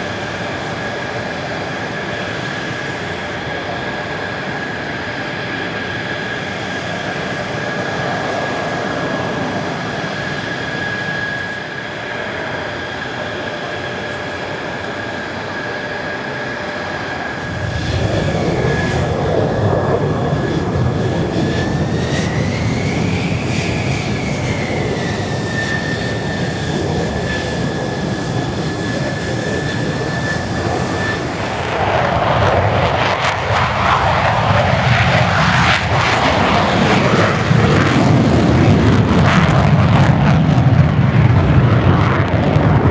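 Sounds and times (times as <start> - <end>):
fighter jets flying by: 0.0 - 42.9.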